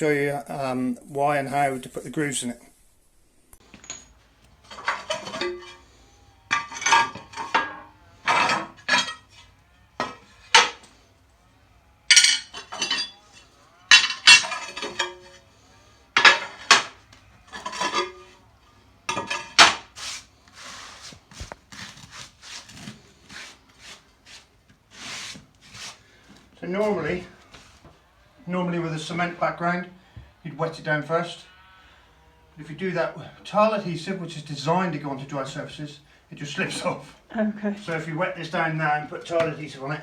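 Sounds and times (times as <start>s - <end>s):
ceramic tiles clinking: 3.6s - 10.9s, 12.1s - 15.4s, 16.2s - 18.4s
tiles scraping and shuffling: 3.6s - 11.0s, 12.1s - 15.4s, 16.1s - 18.4s, 19.1s - 27.9s.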